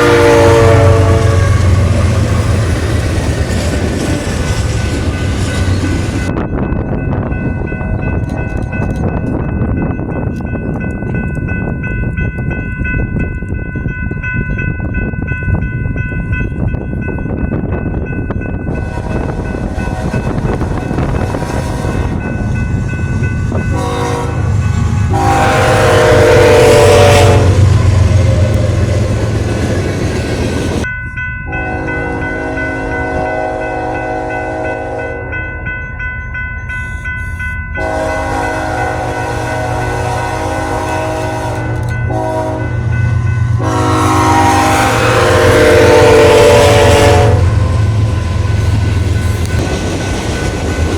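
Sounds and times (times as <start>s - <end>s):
train horn blowing: 0.0s - 2.8s, 18.7s - 22.4s, 23.5s - 29.4s, 31.5s - 35.4s, 37.8s - 49.6s
locomotive engine rumble: 0.0s - 11.5s, 15.6s - 50.9s
crossing bells ringing: 0.0s - 50.9s.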